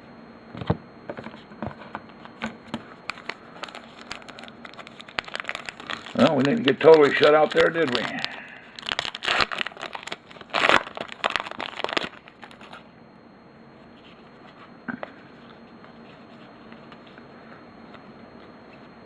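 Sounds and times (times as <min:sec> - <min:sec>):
plastic foil wrapper crinkling: 0:03.0 - 0:12.8.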